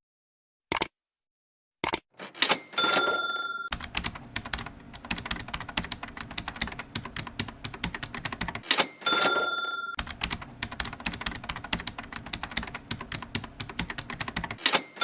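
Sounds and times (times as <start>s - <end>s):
typewriter bell ding: 2.2s - 3.8s, 8.6s - 10.0s, 14.6s - 15.0s
typewriter keystrokes clacking: 2.2s - 15.0s.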